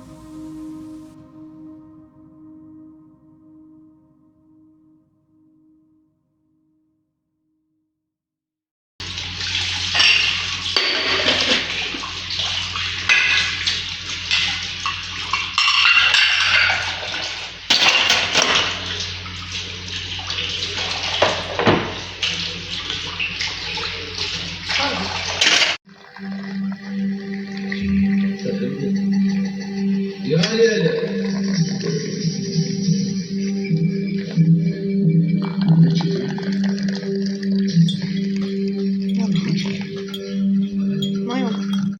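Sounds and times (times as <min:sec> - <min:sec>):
steady low hum: 0:00.0 - 0:01.2
water running from a tap: 0:09.0 - 0:28.4
dishes and cutlery clattering: 0:09.9 - 0:19.4, 0:20.6 - 0:24.0.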